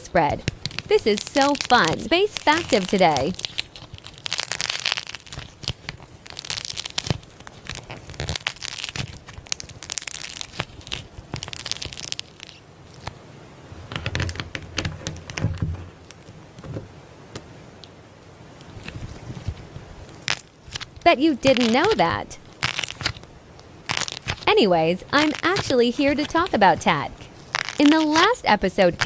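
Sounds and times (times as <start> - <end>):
slime squelching: 0.0 - 13.1, 20.2 - 23.2, 23.8 - 29.0
slime crackling and popping: 0.2 - 13.2, 13.9 - 15.4, 18.8 - 29.0.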